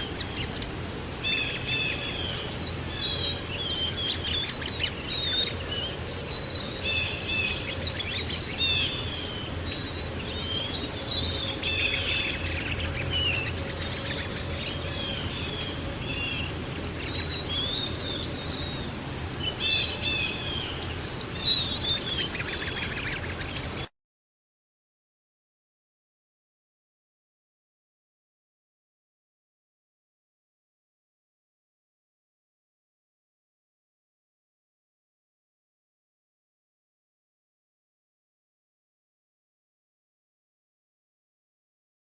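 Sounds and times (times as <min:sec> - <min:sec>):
small birds chirping: 0:00.0 - 0:23.9
steady rushing water: 0:00.0 - 0:23.9.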